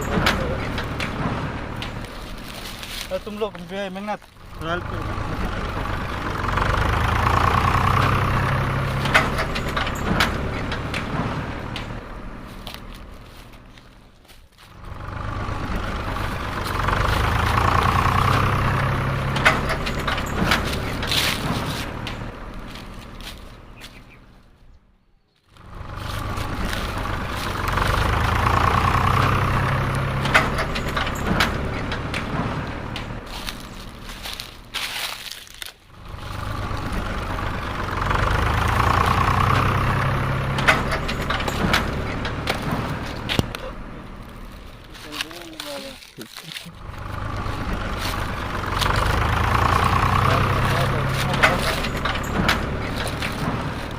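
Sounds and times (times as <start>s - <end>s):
vehicle motor running with whine: 0.0s - 24.7s, 25.4s - 35.2s, 35.8s - 45.8s, 46.6s - 53.9s
toy truck engine sound: 25.6s - 53.9s.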